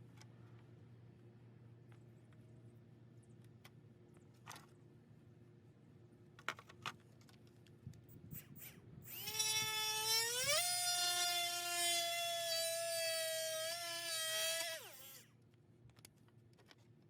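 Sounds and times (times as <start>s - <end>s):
die grinder whining: 8.6s - 15.2s.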